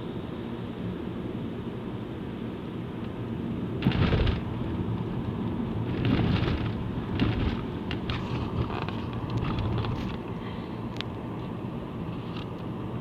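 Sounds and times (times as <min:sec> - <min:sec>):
road and engine noise: 0:00.0 - 0:13.0
rushes of noise: 0:05.7 - 0:10.2.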